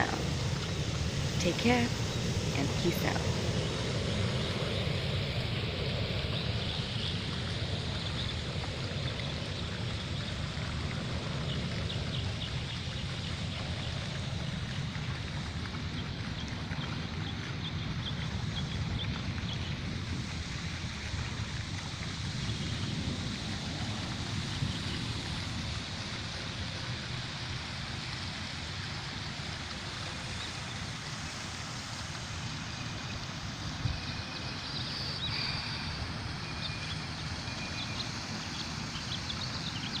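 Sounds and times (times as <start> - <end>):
wind on microphone: 0.0 - 27.1, 32.8 - 37.2.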